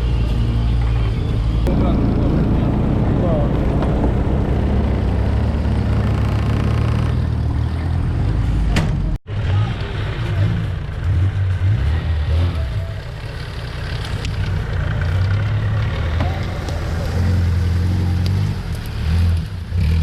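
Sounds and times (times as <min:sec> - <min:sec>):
vehicle engine running under load: 0:00.0 - 0:20.0.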